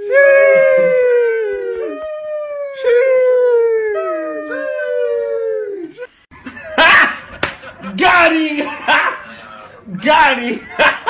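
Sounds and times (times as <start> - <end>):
dog howling: 0.0 - 6.0.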